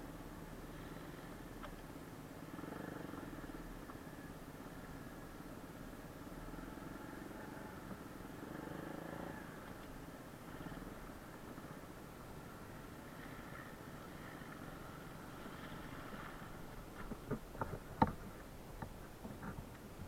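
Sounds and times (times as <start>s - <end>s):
pit bike engine running: 0.7s - 20.0s.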